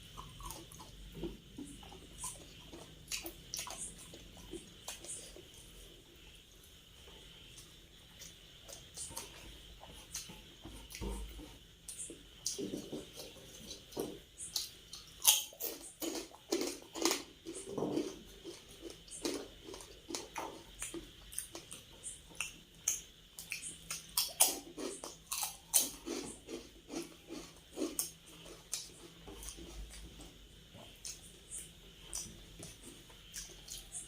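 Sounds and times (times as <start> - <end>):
person chewing food: 0.0 - 34.0.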